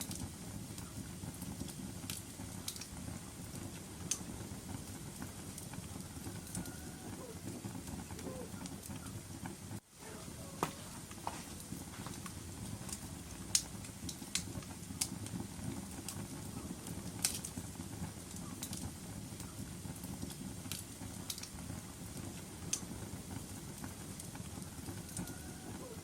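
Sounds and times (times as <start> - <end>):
low rumble of flames: 0.0 - 26.0
wood fire crackles and pops: 0.0 - 26.0.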